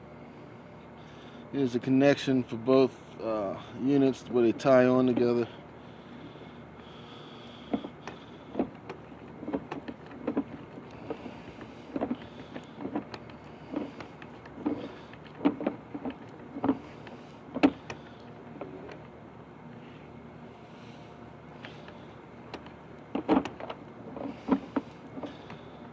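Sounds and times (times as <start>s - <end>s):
steady background hum: 0.0s - 25.9s
camera cable knocking in pipe: 22.6s - 23.8s.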